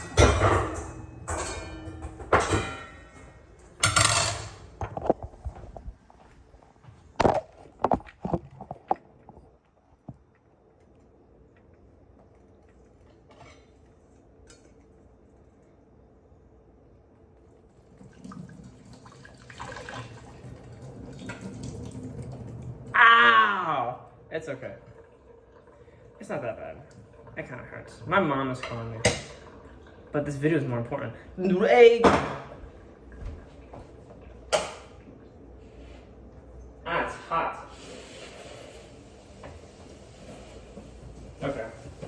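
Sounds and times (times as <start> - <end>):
metal kitchenware clanking: 0.0 - 5.1
water poured into a sink: 17.7 - 23.0.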